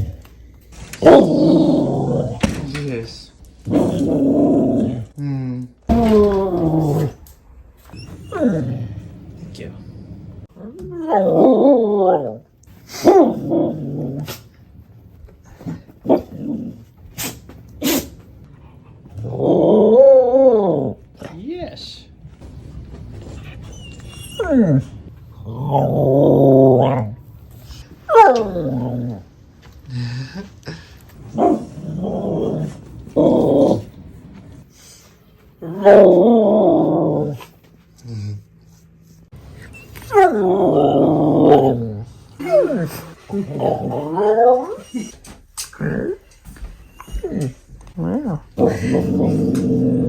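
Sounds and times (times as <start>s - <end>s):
dog howling: 10.6s - 14.2s, 19.2s - 21.0s, 23.6s - 27.2s, 28.1s - 29.2s, 40.0s - 45.3s.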